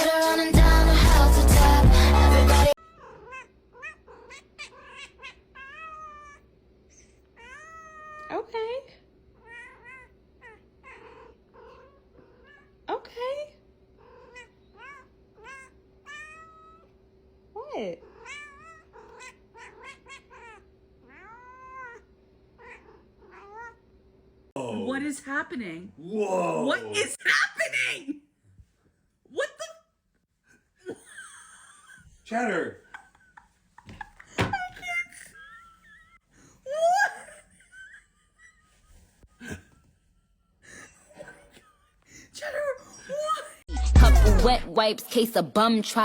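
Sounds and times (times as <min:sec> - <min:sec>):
loud music: 0:00.0 - 0:02.7, 0:43.7 - 0:44.8
cat meowing: 0:02.8 - 0:06.5, 0:07.4 - 0:08.3, 0:09.4 - 0:12.8, 0:14.0 - 0:16.9, 0:18.0 - 0:23.8.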